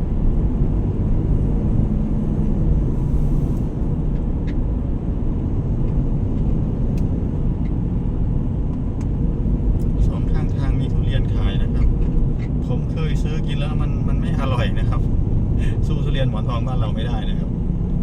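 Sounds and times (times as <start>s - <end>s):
road noise: 0.0s - 18.0s
vehicle engine rumble: 0.0s - 18.0s.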